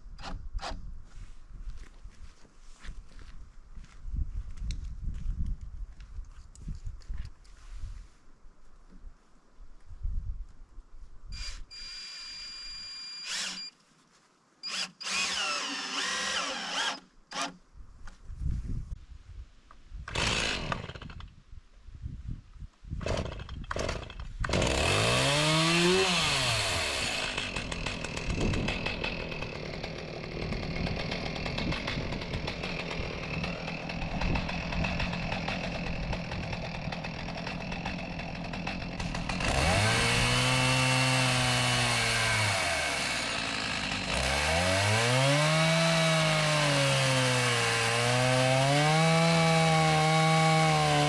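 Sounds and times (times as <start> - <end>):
chainsaw cutting through log: 11.4 - 13.7, 14.6 - 17.6, 20.1 - 21.3, 23.0 - 51.0.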